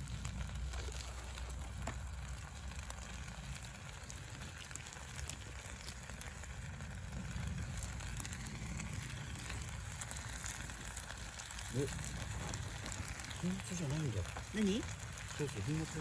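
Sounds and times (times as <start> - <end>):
campfire crackling and popping: 0.0 - 16.0
low rumble: 0.0 - 16.0
noodles sizzling: 0.0 - 16.0.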